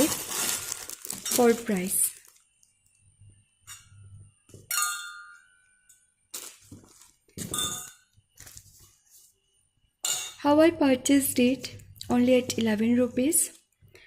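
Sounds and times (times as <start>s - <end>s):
steel cups clinking: 7.4s - 8.1s.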